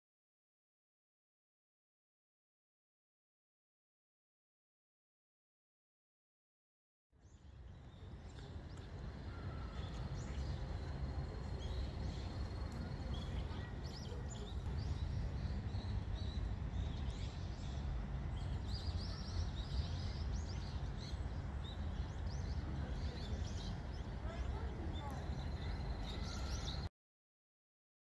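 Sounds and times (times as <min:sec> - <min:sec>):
small birds chirping: 0:07.2 - 0:26.9
low steady rumble: 0:07.3 - 0:26.9.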